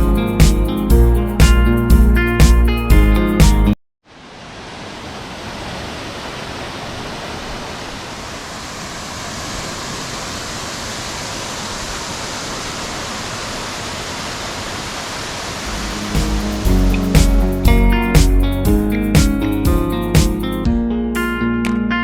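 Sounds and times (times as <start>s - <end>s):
waterfall roaring: 4.1s - 18.4s.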